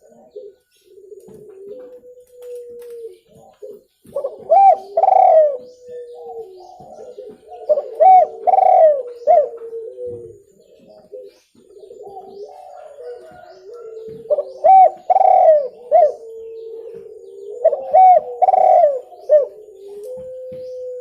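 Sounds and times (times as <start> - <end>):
dove cooing: 0.0 - 21.0
faint continuous cooing: 0.0 - 21.0.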